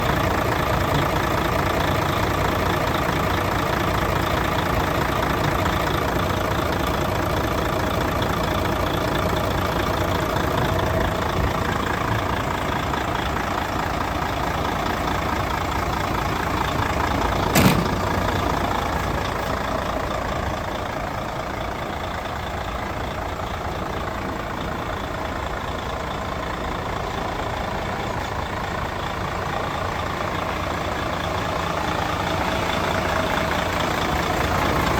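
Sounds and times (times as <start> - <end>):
truck diesel engine idling: 0.0 - 34.9
sharp knock: 17.5 - 18.3.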